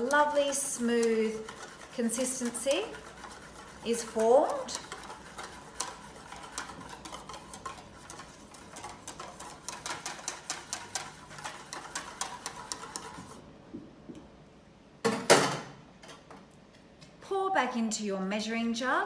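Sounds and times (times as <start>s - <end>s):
wire whisk clicking against bowl: 0.0s - 1.6s.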